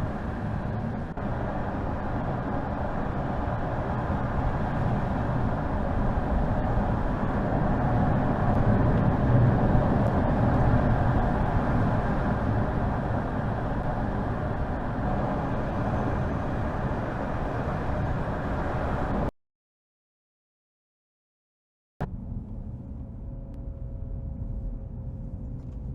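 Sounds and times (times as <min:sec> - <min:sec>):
car engine and road noise: 0:00.0 - 0:19.3, 0:22.0 - 0:25.9.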